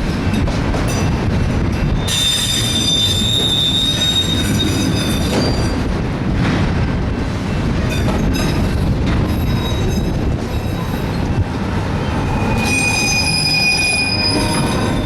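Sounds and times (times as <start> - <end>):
train wheels rumbling on rail: 0.0 - 15.0
high-pitched wheel squeal: 2.0 - 5.7, 12.3 - 15.0.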